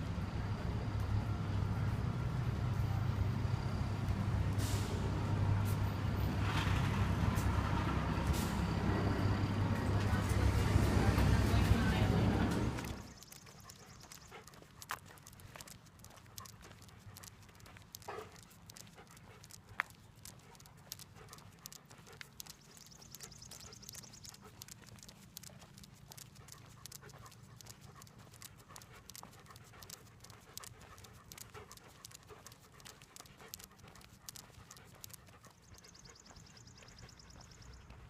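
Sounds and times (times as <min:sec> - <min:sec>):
dog panting: 0:08.4 - 0:38.0.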